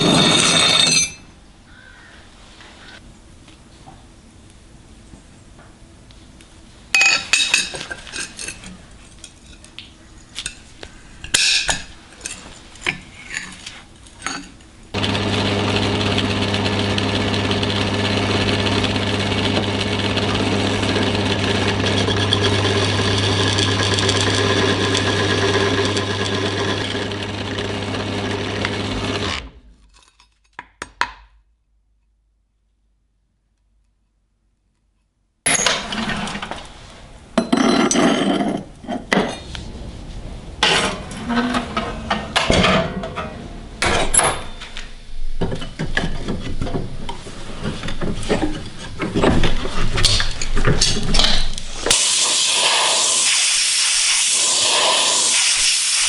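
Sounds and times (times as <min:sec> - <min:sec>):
electric power tool humming: 0:15.0 - 0:29.6.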